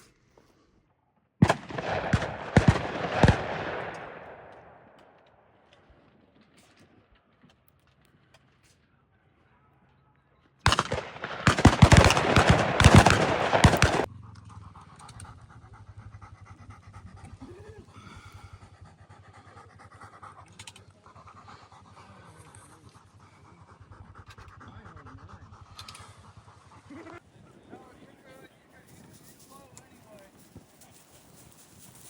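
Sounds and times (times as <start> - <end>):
dog panting: 11.8 - 27.2.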